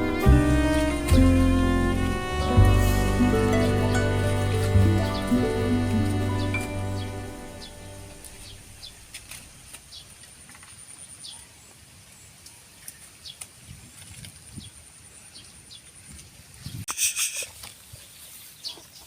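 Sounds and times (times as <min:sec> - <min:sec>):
bird chirps: 0:03.5 - 0:09.2.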